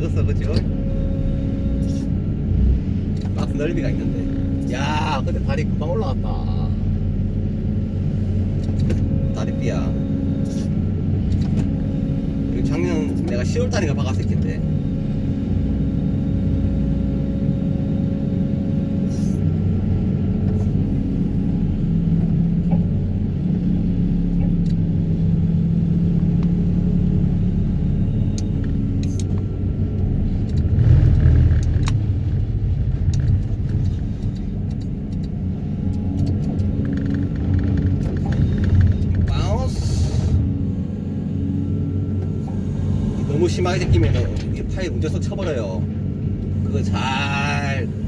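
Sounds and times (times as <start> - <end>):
excavator engine and hydraulics: 0.0 - 48.0
sharp clicks and knocks: 33.0 - 39.4.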